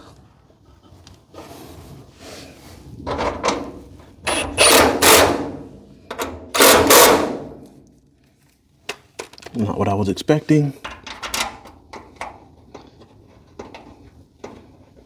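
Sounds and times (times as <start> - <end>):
rough rasping tool noise: 4.3 - 5.6, 6.6 - 7.3.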